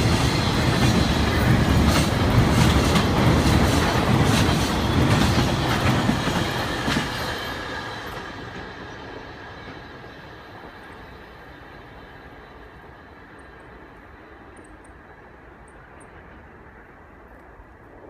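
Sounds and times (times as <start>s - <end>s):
train wheels clattering on rails: 0.0s - 13.8s.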